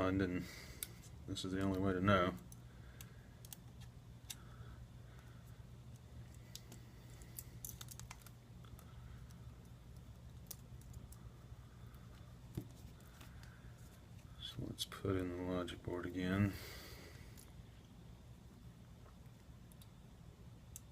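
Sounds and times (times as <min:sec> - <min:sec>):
steady low hum: 0:00.0 - 0:20.9
light clicks of small parts: 0:05.1 - 0:11.2, 0:19.0 - 0:20.0, 0:20.6 - 0:20.9.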